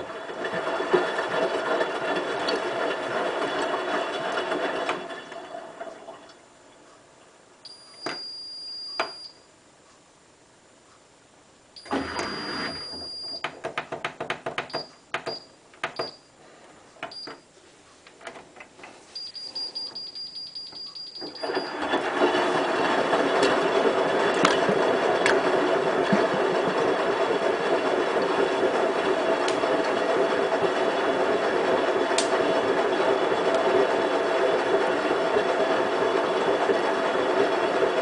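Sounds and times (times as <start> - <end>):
washing machine rushing noise: 0.0 - 6.5, 11.8 - 16.2, 18.2 - 38.0
washing machine knock: 12.9 - 16.2
high electronic beeps: 19.2 - 21.8.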